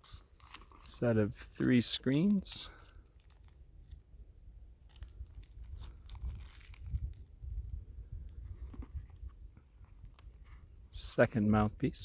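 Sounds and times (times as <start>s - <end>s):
packaging rustling and crinkling: 0.0s - 0.9s, 1.5s - 4.0s, 4.8s - 10.8s.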